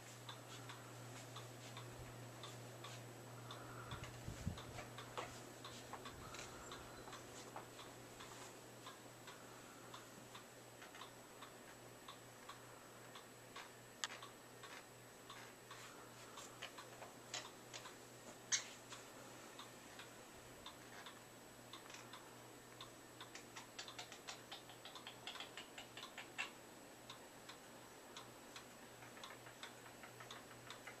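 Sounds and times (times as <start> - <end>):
bird clicks and taps in cage: 23.3 - 26.5.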